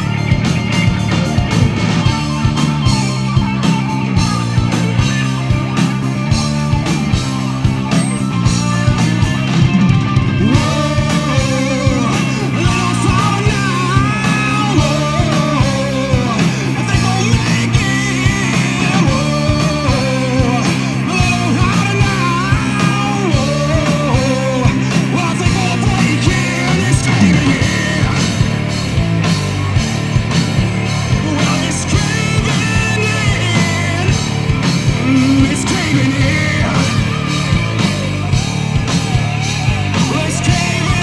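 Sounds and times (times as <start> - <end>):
bass guitar: 0.0 - 41.0
drums: 0.0 - 41.0
electric guitar: 0.0 - 41.0
person singing: 9.7 - 28.6, 31.1 - 38.0, 39.8 - 41.0.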